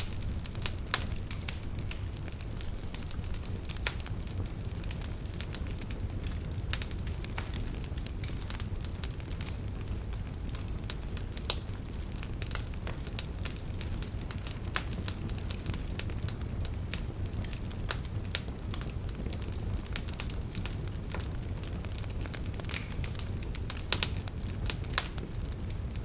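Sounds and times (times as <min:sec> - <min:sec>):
campfire wood crackling: 0:00.0 - 0:26.0
low steady rumble: 0:00.0 - 0:26.0.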